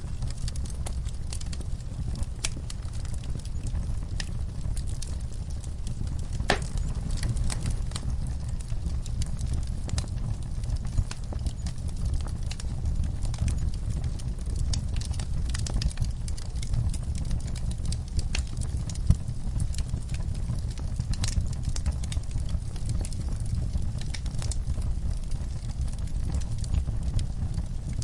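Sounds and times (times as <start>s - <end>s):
low rumble of flames: 0.0s - 28.0s
wood fire crackling: 0.0s - 28.0s.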